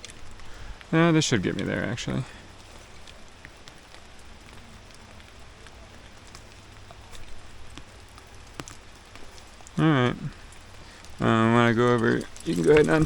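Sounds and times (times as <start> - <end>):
light rain hiss: 0.0 - 13.0
raindrops ticking close by: 0.0 - 13.0.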